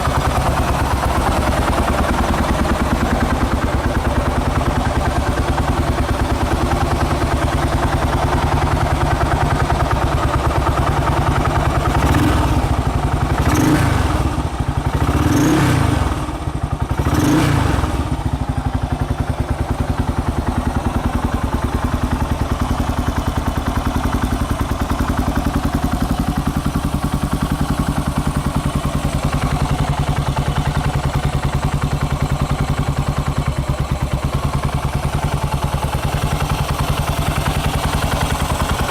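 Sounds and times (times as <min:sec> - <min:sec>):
motorcycle engine idling: 0:00.0 - 0:38.9
throttle blips revving engine: 0:12.0 - 0:12.8, 0:13.4 - 0:18.2.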